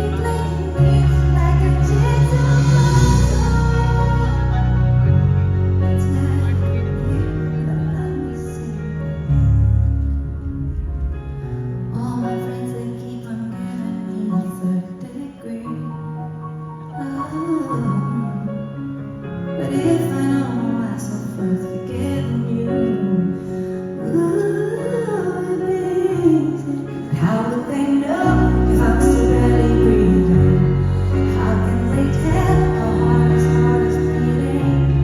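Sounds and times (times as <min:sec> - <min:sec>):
band accompaniment: 0:00.0 - 0:08.0
woman singing: 0:00.0 - 0:09.3, 0:11.9 - 0:16.2, 0:17.0 - 0:18.7, 0:19.6 - 0:35.0
heavy bass line: 0:00.0 - 0:11.9, 0:28.3 - 0:35.0.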